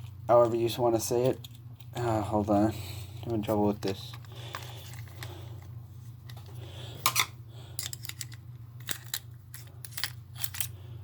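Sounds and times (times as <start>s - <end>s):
steady low hum: 0.0s - 11.0s
small plastic parts clicking: 7.8s - 10.7s.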